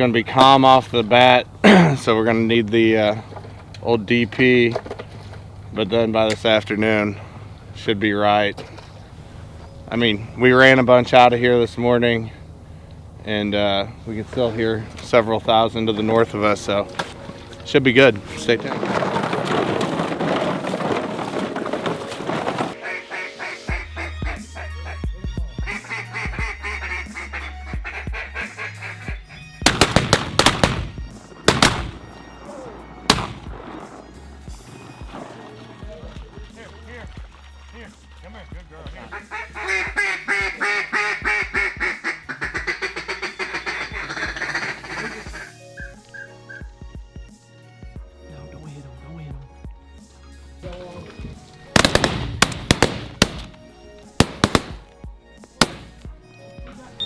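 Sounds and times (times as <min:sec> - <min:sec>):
background music: 0:05.5 - 0:57.0
shotguns firing: 0:29.7 - 0:32.2, 0:33.1 - 0:33.9, 0:51.7 - 0:55.0, 0:55.6 - 0:56.1.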